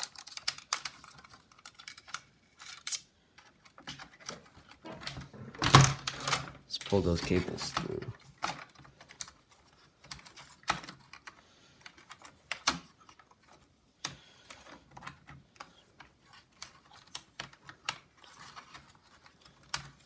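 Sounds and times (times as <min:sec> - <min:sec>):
plastic parts and cables clicking: 0:00.0 - 0:20.0.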